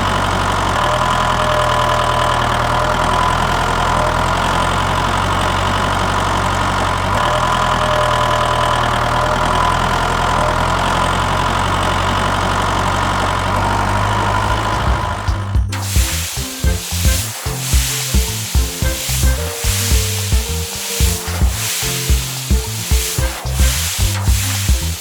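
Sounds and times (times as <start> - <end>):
constant whine: 0.0 - 25.0
tractor engine idling: 0.0 - 25.0.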